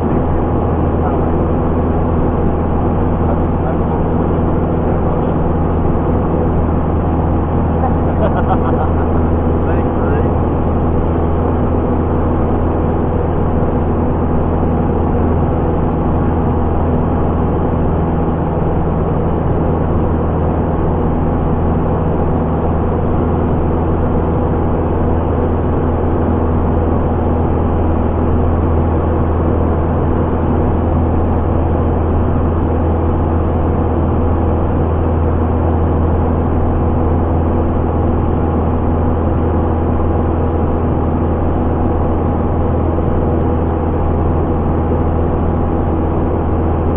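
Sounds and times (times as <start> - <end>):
propeller plane engine droning: 0.0 - 46.9.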